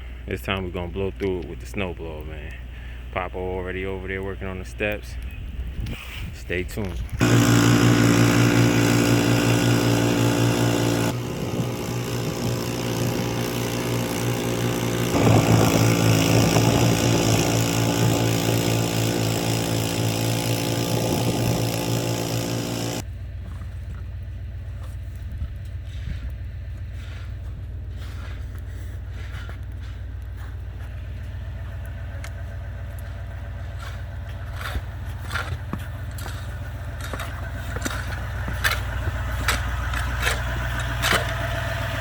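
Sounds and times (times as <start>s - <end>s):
snowblower engine running: 7.0s - 42.0s
low rumble: 15.1s - 18.8s.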